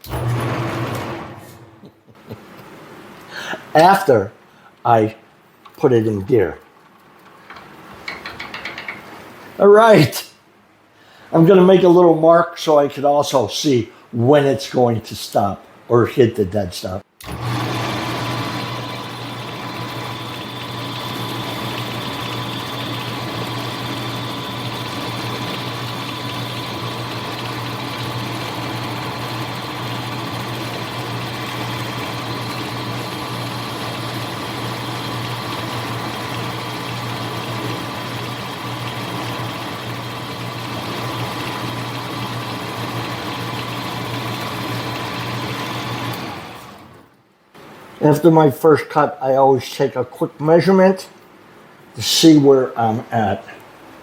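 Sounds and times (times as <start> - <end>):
metal lathe running: 0.0 - 1.9, 17.2 - 47.0.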